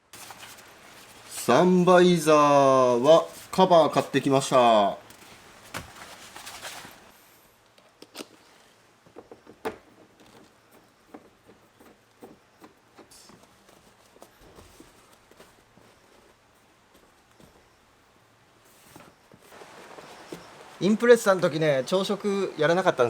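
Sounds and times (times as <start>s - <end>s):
rustling: 0.0s - 23.0s.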